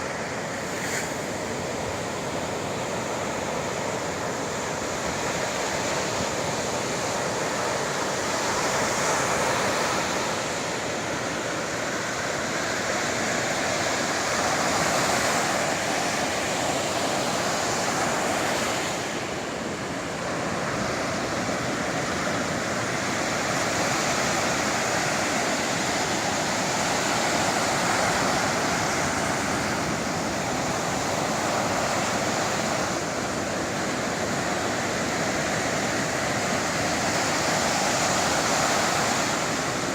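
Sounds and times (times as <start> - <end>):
sea waves rushing onto shore: 0.0 - 39.9.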